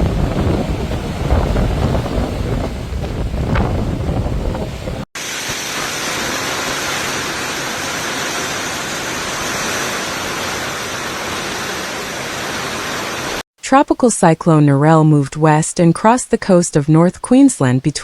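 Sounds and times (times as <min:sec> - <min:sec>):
wind buffeting microphone: 0:00.0 - 0:05.1
steady rushing hiss: 0:00.0 - 0:13.4.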